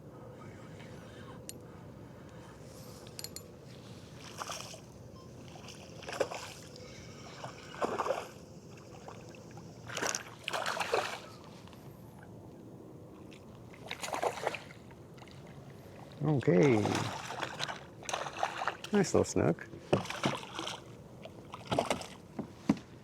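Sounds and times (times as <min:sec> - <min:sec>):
fish splashing at water surface: 0:04.2 - 0:06.7, 0:07.3 - 0:09.2, 0:09.8 - 0:11.3, 0:13.8 - 0:14.8, 0:16.7 - 0:18.9, 0:20.0 - 0:22.2.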